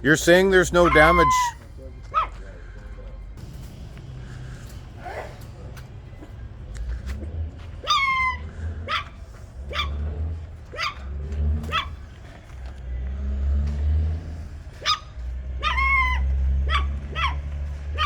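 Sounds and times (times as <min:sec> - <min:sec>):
dog barking: 0:00.7 - 0:02.4, 0:05.0 - 0:05.4, 0:07.8 - 0:12.2, 0:14.8 - 0:18.0
low steady rumble: 0:01.6 - 0:18.0.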